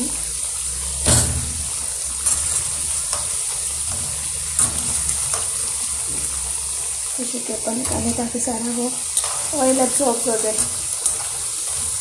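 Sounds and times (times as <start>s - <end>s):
fritters sizzling in hot oil: 0.0s - 12.0s.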